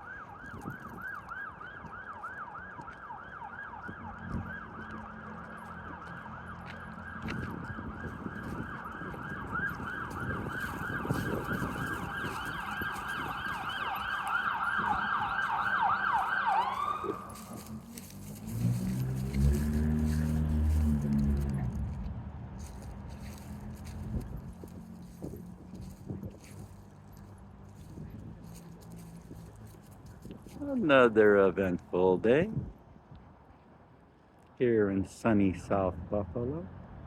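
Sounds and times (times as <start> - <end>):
siren yelping: 0.0 - 17.9
low traffic rumble: 0.0 - 37.0.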